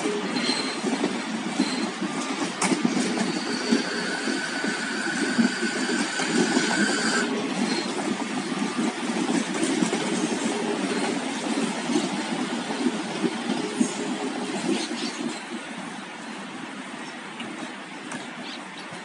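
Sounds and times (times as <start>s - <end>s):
train wheels rumbling over track: 0.0s - 19.0s.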